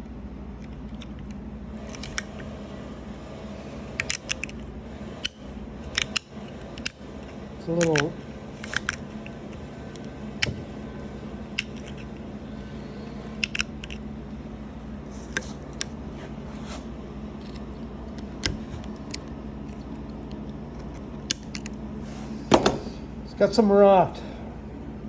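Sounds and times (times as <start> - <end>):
handling clicks and knocks: 4.0 - 12.2, 13.3 - 14.0.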